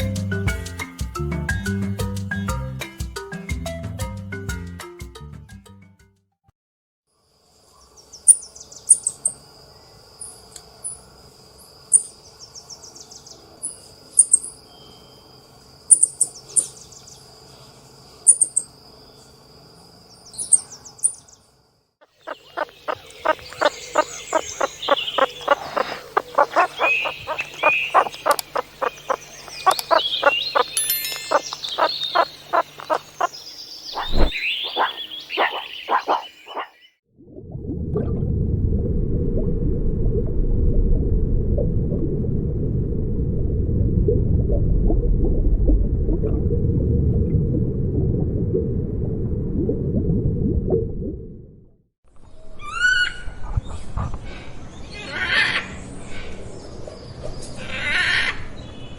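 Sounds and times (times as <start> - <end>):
high insect drone: 13.7 - 36.6
fast animal calls: 22.0 - 36.9
birds chirping: 22.0 - 37.0
high gliding calls: 22.2 - 36.9.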